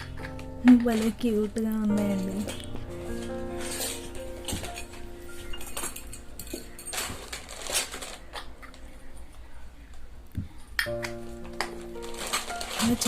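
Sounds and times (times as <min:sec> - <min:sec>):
miniature metal pots clinking: 0:00.0 - 0:08.7.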